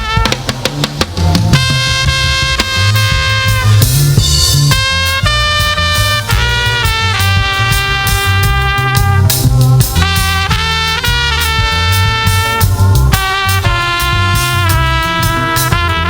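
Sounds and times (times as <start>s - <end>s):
bass guitar: 0.0s - 16.0s
drum kit: 0.0s - 16.0s
horns holding long notes: 0.0s - 16.0s.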